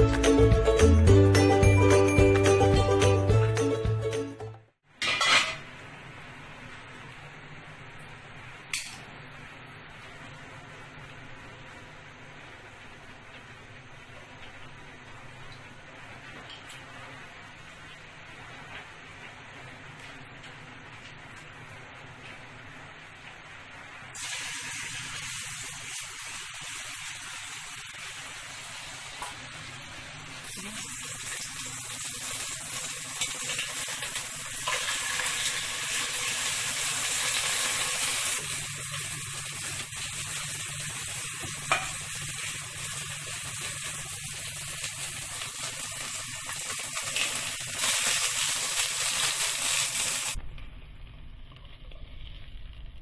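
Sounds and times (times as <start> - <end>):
chicken sizzling in hot oil: 23.9 - 53.0.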